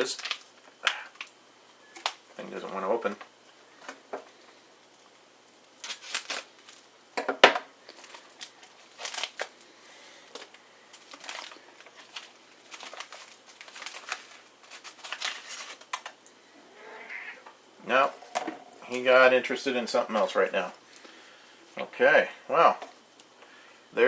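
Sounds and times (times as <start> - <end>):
plastic pouch crinkling and tearing: 0.1 - 1.4, 5.6 - 6.9, 7.8 - 9.7, 10.3 - 16.3.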